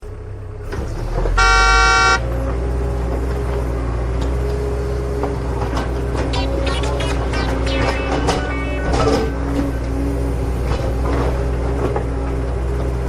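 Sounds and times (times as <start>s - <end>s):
loud horn toot: 1.4s - 2.2s.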